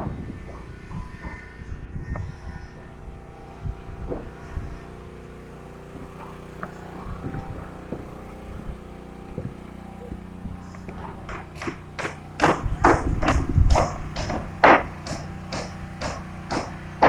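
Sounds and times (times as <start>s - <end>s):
motor humming: 0.0s - 17.0s
short knocks: 9.3s - 17.0s.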